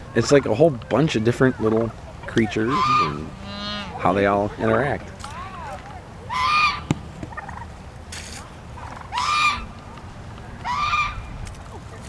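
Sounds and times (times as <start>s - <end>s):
farm fowl calling: 1.2s - 7.8s, 8.8s - 9.8s, 10.5s - 11.4s.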